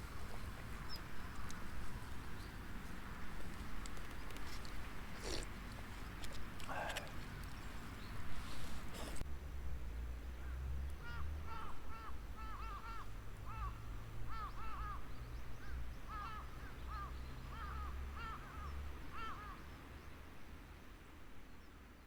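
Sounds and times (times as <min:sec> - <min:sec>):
crows cawing: 0:11.0 - 0:15.0, 0:16.1 - 0:19.5.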